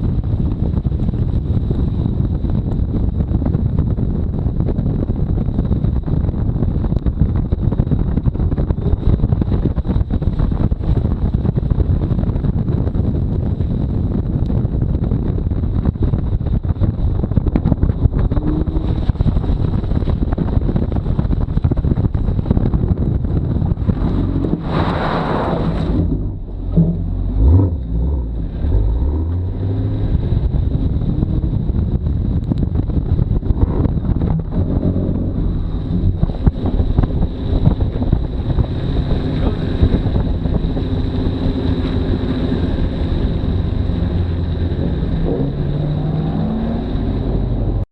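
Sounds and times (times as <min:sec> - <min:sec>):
wind buffeting on microphone: 0:00.0 - 0:47.9
car engine revving: 0:17.8 - 0:20.2, 0:23.5 - 0:47.8.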